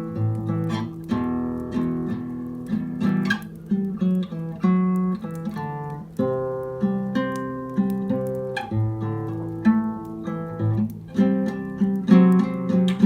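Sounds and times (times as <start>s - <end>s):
nylon-string guitar picked slowly: 0.0s - 13.0s.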